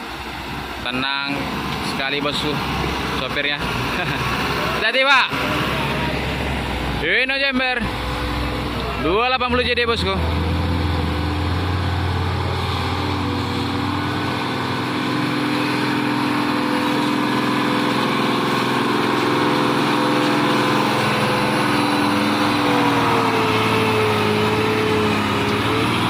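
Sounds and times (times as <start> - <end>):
truck diesel engine under load: 0.0 - 26.0.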